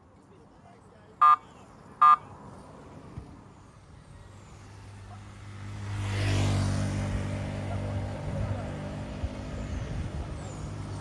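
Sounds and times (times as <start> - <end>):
street traffic: 0.0 - 11.0
vehicle horn beep: 1.2 - 1.4, 2.0 - 2.2
vehicle engine approaching: 3.6 - 11.0.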